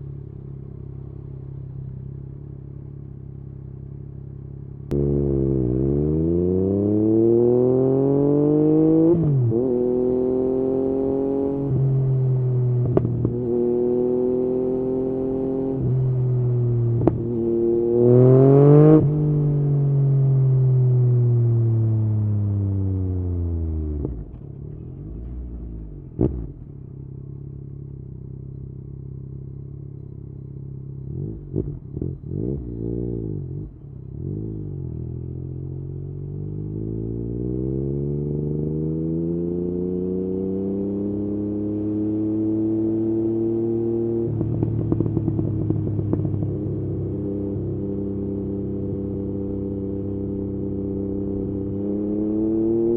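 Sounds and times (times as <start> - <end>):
motorcycle engine revving: 4.9 - 52.9
exhaust crack: 24.0 - 27.2.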